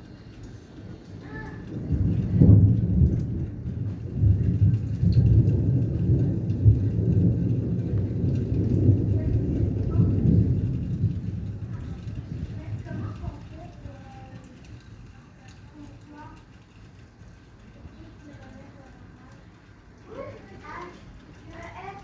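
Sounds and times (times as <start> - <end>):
rain falling: 0.0 - 22.0
thunder rumbling: 0.0 - 22.0.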